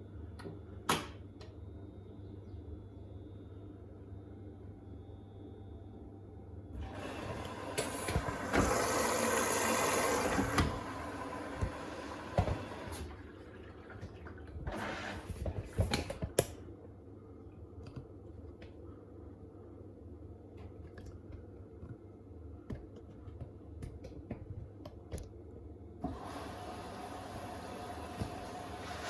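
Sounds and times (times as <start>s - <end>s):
water rushing into washing machine: 6.8s - 16.2s, 26.0s - 29.0s.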